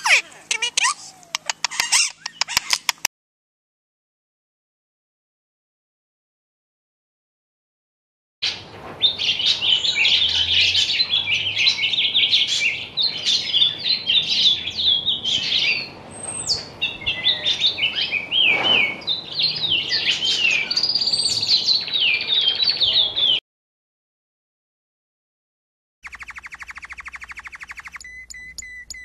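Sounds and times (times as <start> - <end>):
sparrow chirping: 0.0 - 3.1, 9.0 - 23.4, 26.0 - 29.0.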